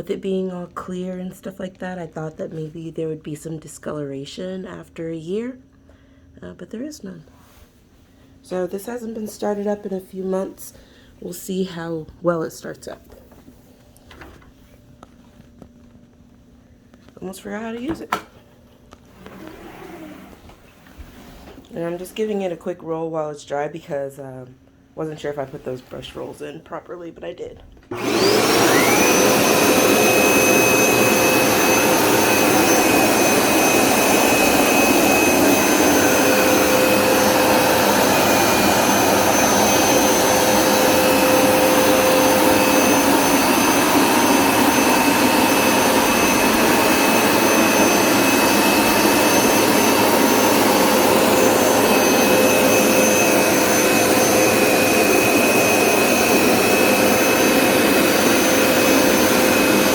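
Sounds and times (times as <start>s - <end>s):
carpet cleaner motor whine: 18.9s - 20.6s, 27.9s - 59.9s.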